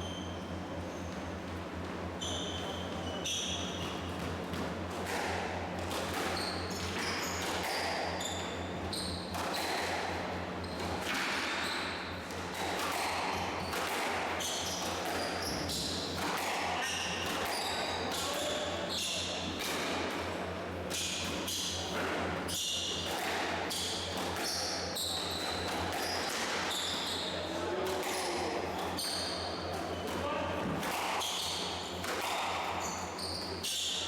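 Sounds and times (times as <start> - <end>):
shoes squeaking on court floor: 0.0 - 4.4, 6.2 - 9.9, 10.6 - 16.2, 16.8 - 19.5, 21.2 - 34.0
squash ball struck by rackets: 30.6 - 31.4, 32.0 - 32.8.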